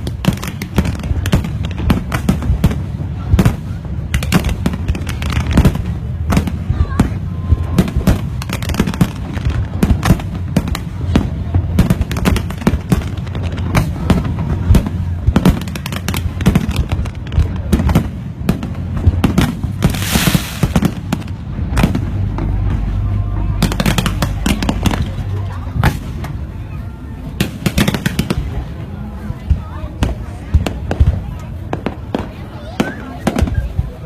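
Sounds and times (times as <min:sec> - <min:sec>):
fireworks bangs and crackles: 0:00.0 - 0:34.0
low rumble: 0:16.2 - 0:27.4
loud hiss: 0:19.8 - 0:21.0.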